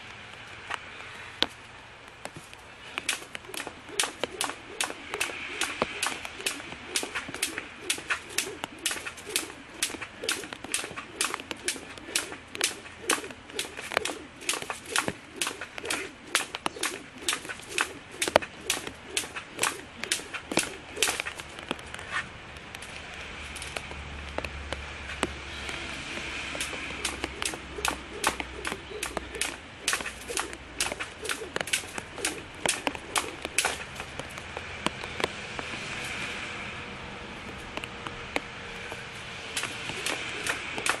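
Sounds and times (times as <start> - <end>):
jump rope slapping ground: 0.0 - 36.2, 37.4 - 41.0.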